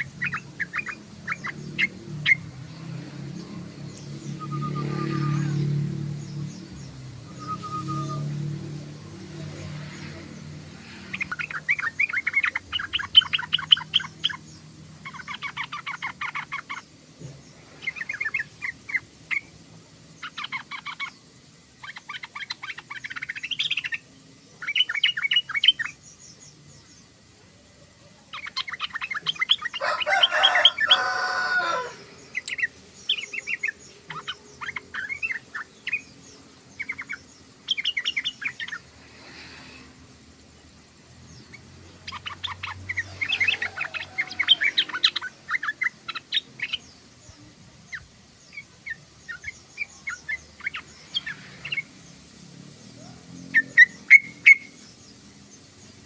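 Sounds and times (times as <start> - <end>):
bulbul singing and chattering: 0.0 - 56.0.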